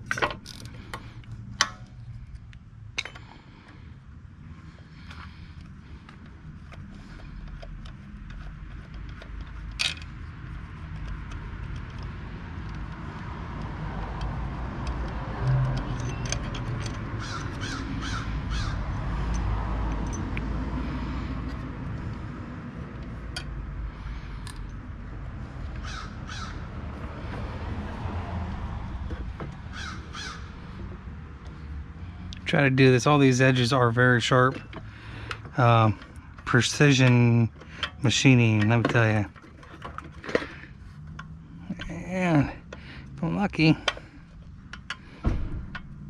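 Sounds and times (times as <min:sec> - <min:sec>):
tools clicking on engine parts: 0:00.0 - 0:03.9, 0:04.6 - 0:22.3, 0:22.9 - 0:26.5, 0:31.4 - 0:46.0
crows cawing: 0:17.2 - 0:18.9, 0:25.8 - 0:26.7, 0:29.7 - 0:30.6.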